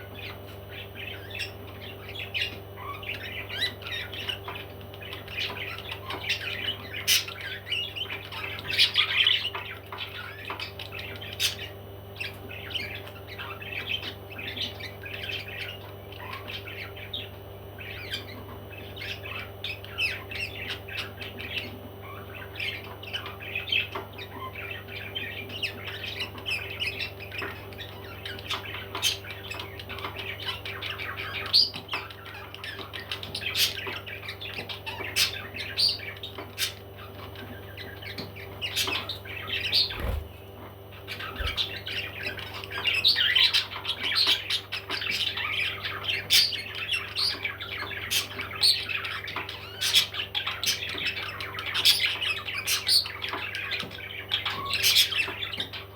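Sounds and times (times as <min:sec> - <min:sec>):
parrots squawking and chirping: 0:00.0 - 0:55.9
steady low hum: 0:35.3 - 0:43.5.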